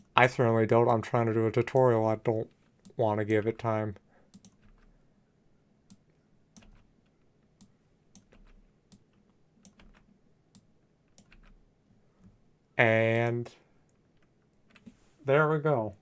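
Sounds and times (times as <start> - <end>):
mouse and keyboard clicking: 4.3 - 4.9, 6.6 - 6.9, 7.6 - 11.6.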